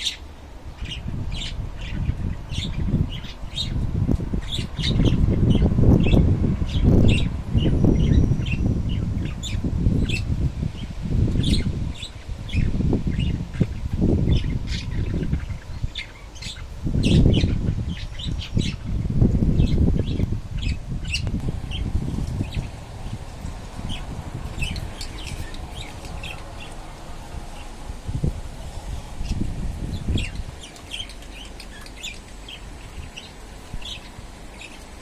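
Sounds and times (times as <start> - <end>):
wind buffeting microphone: 0.0 - 35.0
high bird chirps: 20.6 - 26.8.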